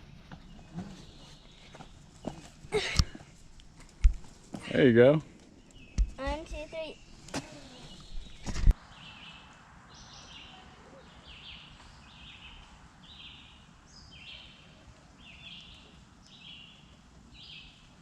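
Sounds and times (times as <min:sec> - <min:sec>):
faint outdoor background: 0:00.0 - 0:18.0
bird chirping: 0:05.5 - 0:17.9.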